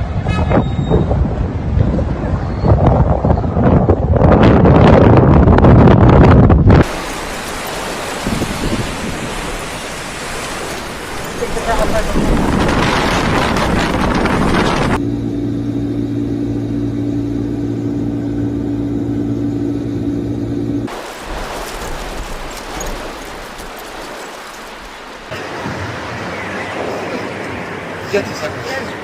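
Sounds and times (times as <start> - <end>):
storm wind blowing: 0.0 - 15.0, 18.8 - 29.0
low mechanical hum: 15.0 - 20.9.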